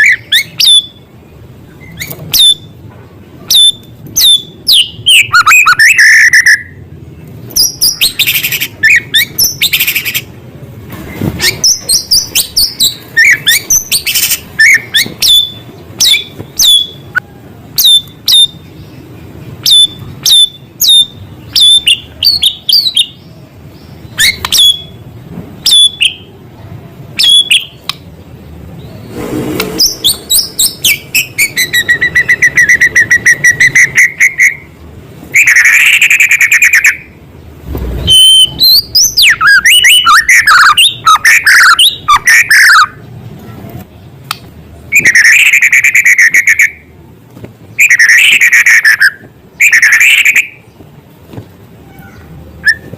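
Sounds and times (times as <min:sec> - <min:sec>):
bird trilling: 0:00.0 - 0:01.1, 0:01.8 - 0:02.8, 0:03.5 - 0:06.8, 0:07.6 - 0:10.3, 0:11.4 - 0:17.2, 0:19.6 - 0:23.2, 0:24.1 - 0:25.0, 0:29.7 - 0:34.7, 0:38.0 - 0:43.0, 0:47.8 - 0:50.7
songbird singing whistled notes: 0:00.0 - 0:01.1, 0:01.7 - 0:02.8, 0:03.5 - 0:06.8, 0:07.5 - 0:10.3, 0:11.4 - 0:19.0, 0:19.6 - 0:25.0, 0:25.6 - 0:26.3, 0:27.2 - 0:27.9, 0:29.8 - 0:34.7, 0:37.9 - 0:43.0, 0:44.9 - 0:46.9, 0:47.8 - 0:50.8, 0:52.1 - 0:52.9.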